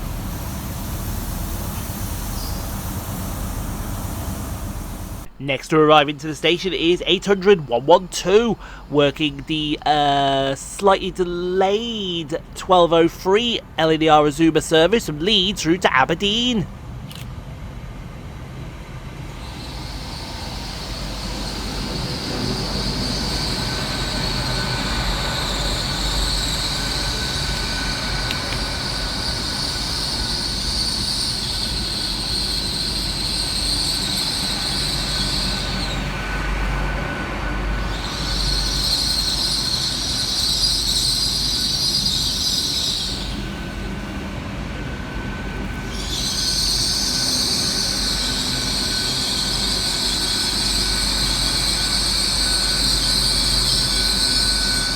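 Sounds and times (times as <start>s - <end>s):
train rumble: 0.0s - 54.9s
high-pitched brake squeal: 2.1s - 3.1s, 19.4s - 43.8s, 45.1s - 54.9s.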